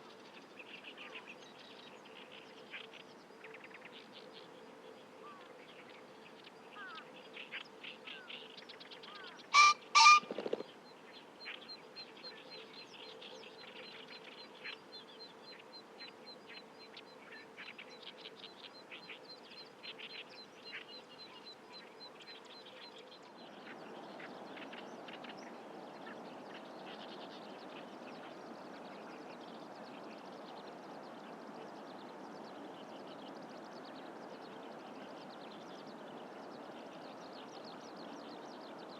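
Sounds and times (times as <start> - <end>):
small songbirds chirping: 0.0 - 38.9
pheasant two-note crow: 9.6 - 10.2.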